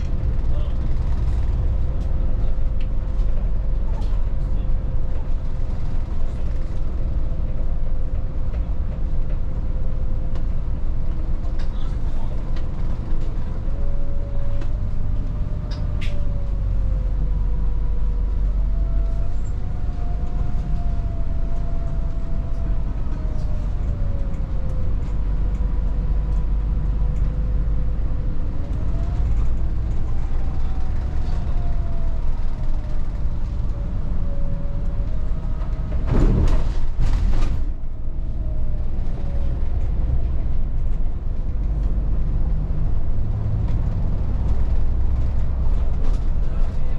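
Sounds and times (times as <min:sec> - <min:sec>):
bus engine and road rumble: 0:00.0 - 0:46.9.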